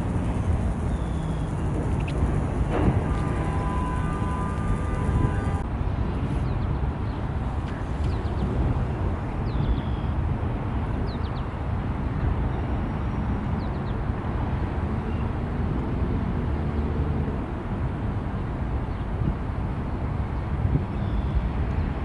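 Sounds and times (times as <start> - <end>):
freight train rumbling past: 0.0 - 5.6.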